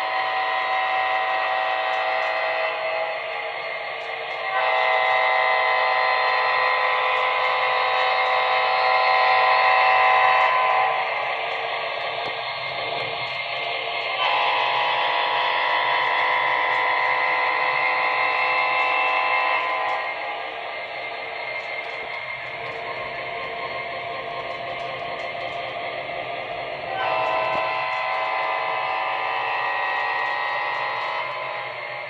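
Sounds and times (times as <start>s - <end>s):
train horn blasts: 0.0s - 12.8s, 14.0s - 20.5s, 26.9s - 32.0s.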